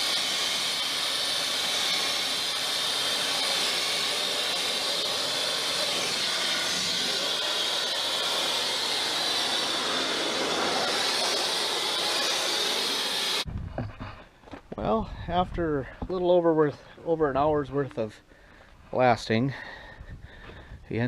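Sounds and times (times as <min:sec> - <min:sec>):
sandblaster hissing: 0:00.0 - 0:13.5.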